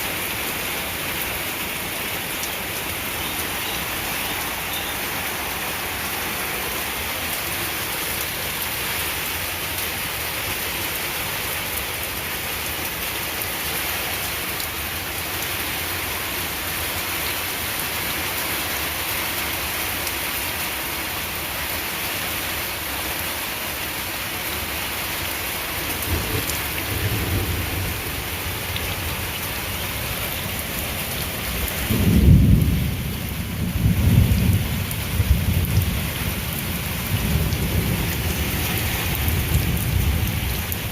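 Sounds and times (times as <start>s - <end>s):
heavy rain falling: 0.0s - 40.9s
thunder rumbling: 26.0s - 29.4s, 31.4s - 40.9s.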